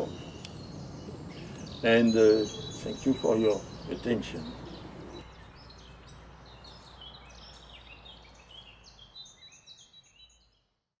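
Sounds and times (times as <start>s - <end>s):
low background hum: 0.0s - 5.2s
high bird chirps: 0.0s - 10.7s.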